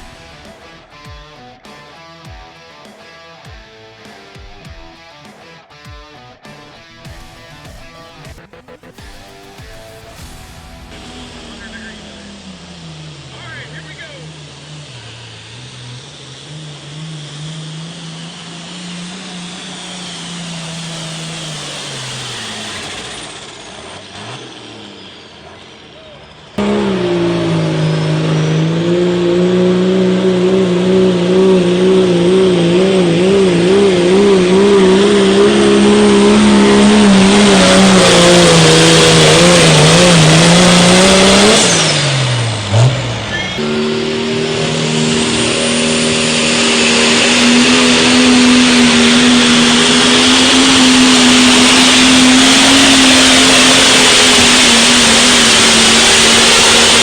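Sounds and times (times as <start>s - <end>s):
high-revving engine drone: 0.0s - 57.0s.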